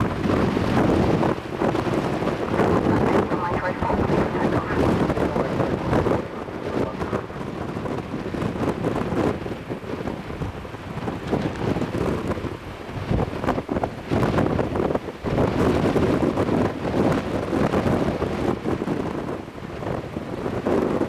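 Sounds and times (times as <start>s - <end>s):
gusty wind buffeting microphone: 0.0s - 21.0s.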